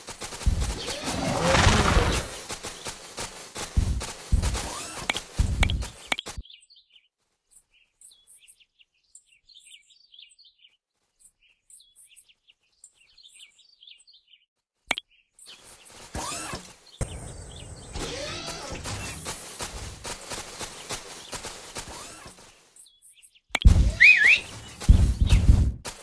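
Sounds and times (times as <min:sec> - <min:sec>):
small birds chirping: 0:00.0 - 0:26.0
loud noise burst with low thumps: 0:00.4 - 0:02.5, 0:03.7 - 0:04.8.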